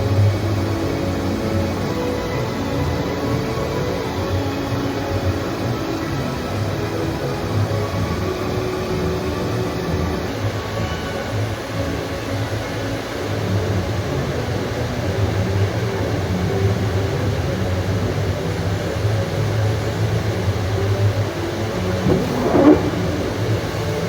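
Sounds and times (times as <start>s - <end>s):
vehicle rumbling: 21.6s - 24.0s
short rising squeal: 22.0s - 24.0s.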